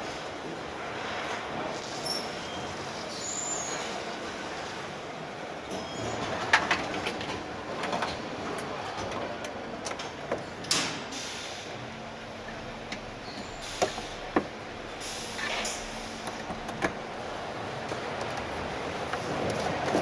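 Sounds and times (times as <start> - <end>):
steady background noise: 0.0 - 20.0
air hiss bursts: 11.1 - 11.8, 13.6 - 14.3, 15.0 - 16.4.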